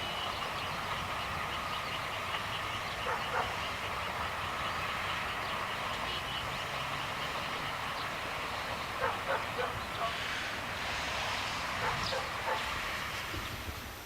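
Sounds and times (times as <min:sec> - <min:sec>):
steady background noise: 0:00.0 - 0:14.0
dog barking: 0:03.0 - 0:03.6, 0:09.0 - 0:10.2, 0:11.8 - 0:12.7.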